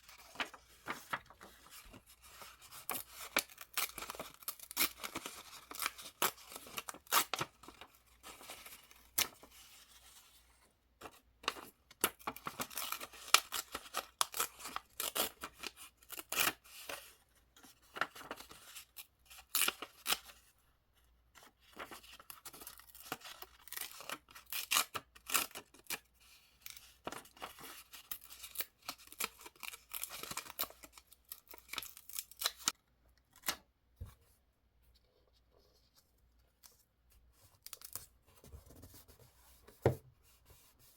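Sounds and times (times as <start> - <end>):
paper rustling: 0.1 - 10.3, 16.9 - 18.7.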